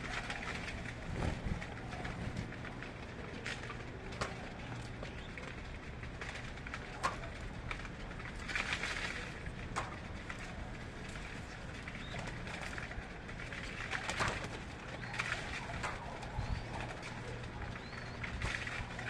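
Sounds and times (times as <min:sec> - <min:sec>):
steady low hum: 0:00.0 - 0:19.0
birds calling: 0:11.5 - 0:12.9, 0:14.0 - 0:19.0.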